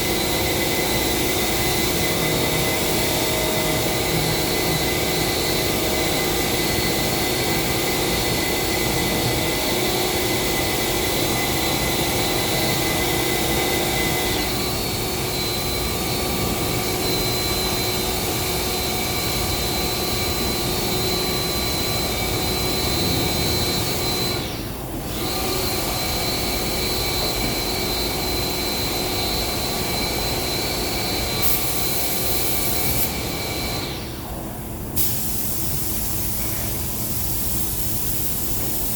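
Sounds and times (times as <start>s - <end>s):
spray-painting equipment drone: 0.0s - 38.9s.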